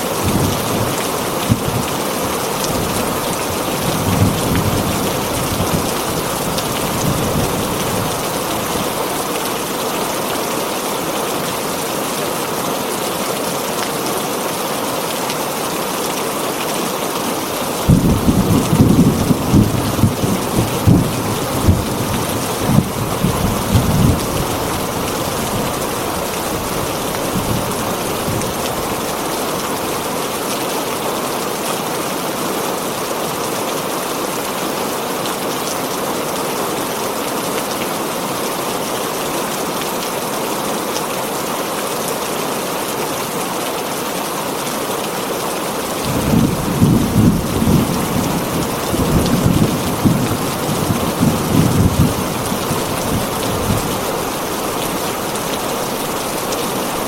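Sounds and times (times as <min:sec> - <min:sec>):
heavy rain on a tin roof: 0:00.0 - 0:57.0
thunder rumbling: 0:17.9 - 0:24.3, 0:46.1 - 0:54.0.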